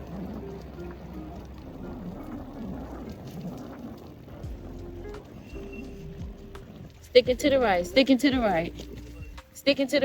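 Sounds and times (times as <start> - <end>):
wind noise on microphone: 0.0 - 10.0.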